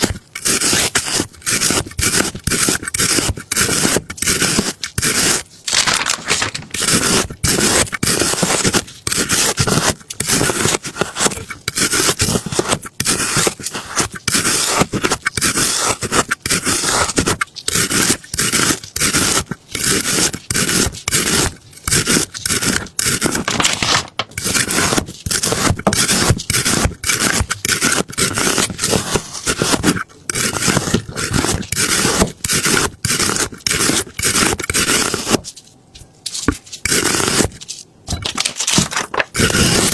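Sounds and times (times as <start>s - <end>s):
loud scraping strokes: 13.0s - 35.5s.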